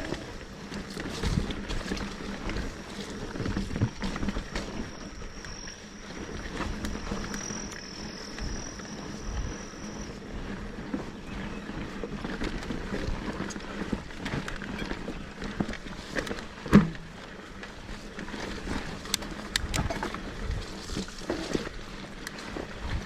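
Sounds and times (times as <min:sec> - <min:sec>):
bike chain and frame rattling: 0:00.0 - 0:23.0
bike tyres on dirt trail: 0:00.0 - 0:23.0.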